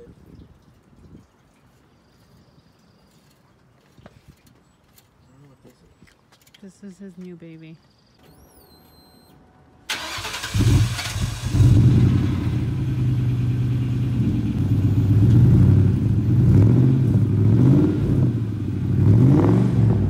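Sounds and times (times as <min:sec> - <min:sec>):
car engine cranking and starting: 0:09.9 - 0:16.2
car engine idling and revving: 0:09.9 - 0:20.0.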